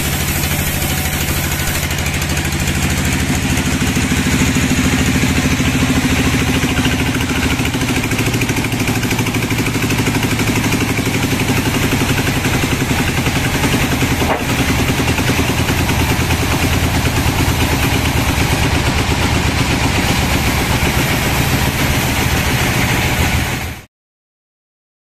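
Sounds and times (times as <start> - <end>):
sawmill engine pulsing: 0.0 - 23.9
brief knock: 14.2 - 14.6.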